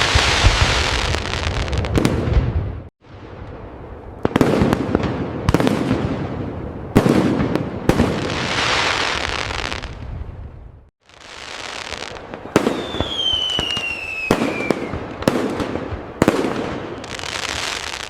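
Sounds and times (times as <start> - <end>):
fireworks crackling: 0.0 - 18.0
fireworks sharp bangs: 4.2 - 10.0, 11.1 - 18.0.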